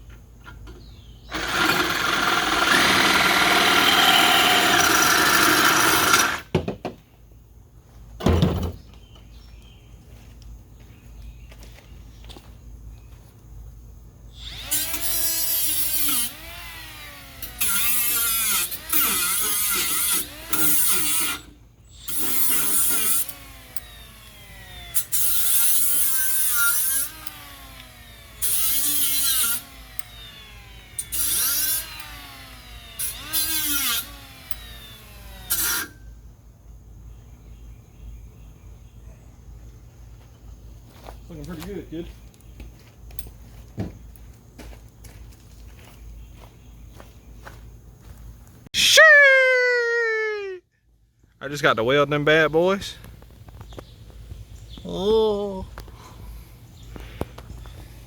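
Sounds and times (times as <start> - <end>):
power tool motor whine: 1.3 - 6.5, 14.4 - 36.0.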